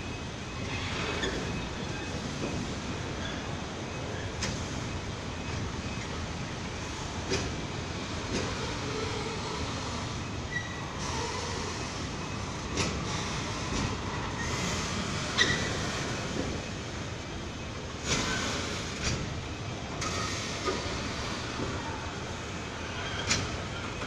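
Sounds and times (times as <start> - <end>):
freight train wheel rumble: 0.0 - 24.0
high wheel squeals: 10.5 - 12.4, 13.0 - 16.3.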